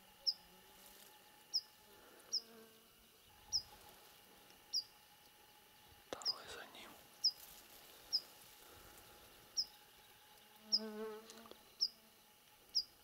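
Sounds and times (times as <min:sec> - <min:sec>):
faint insect whine: 0:00.0 - 0:13.0
small bird chirping: 0:00.2 - 0:00.5, 0:01.5 - 0:01.7, 0:02.3 - 0:02.6, 0:03.2 - 0:03.8, 0:04.7 - 0:04.9, 0:06.2 - 0:07.4, 0:08.0 - 0:08.3, 0:09.1 - 0:12.0, 0:12.7 - 0:13.0.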